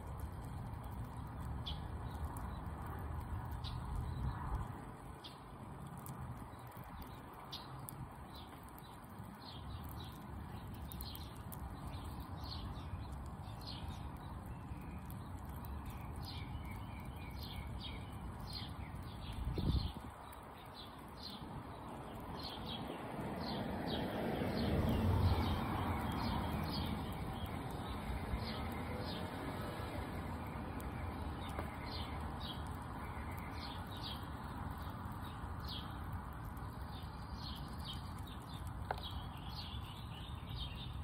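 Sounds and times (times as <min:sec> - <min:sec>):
small bird chirping: 0:06.0 - 0:23.6, 0:24.9 - 0:29.3, 0:30.3 - 0:41.0.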